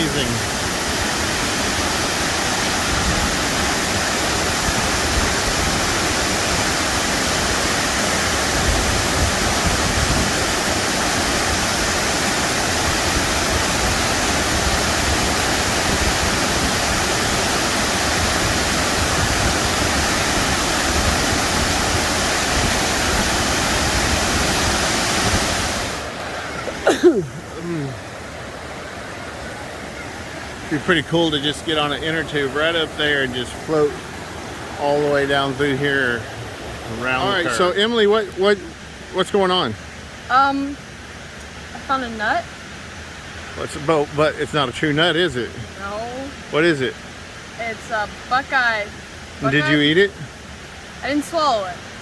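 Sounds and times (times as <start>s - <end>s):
waterfall rushing: 0.0s - 52.0s
wind rumble on microphone: 0.6s - 6.8s, 7.5s - 26.7s.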